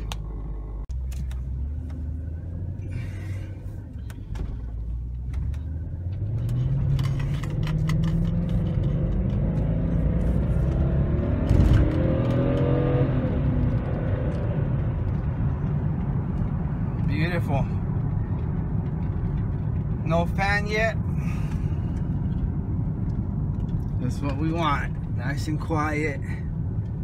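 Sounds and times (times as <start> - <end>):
car engine accelerating: 0.0 - 20.4.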